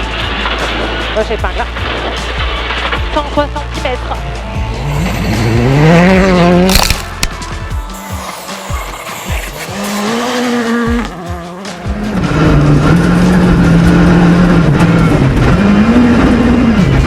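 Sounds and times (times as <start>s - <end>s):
rally car engine revving: 0.0s - 7.3s, 8.4s - 17.0s.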